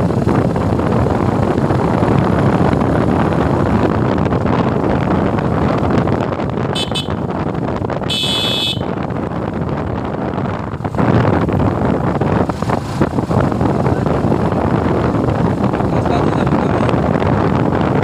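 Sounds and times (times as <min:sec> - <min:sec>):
motorcycle engine and road noise: 0:00.0 - 0:18.0
wind rushing over microphone: 0:00.0 - 0:18.0
vehicle horn toot: 0:06.7 - 0:07.3, 0:08.0 - 0:09.0.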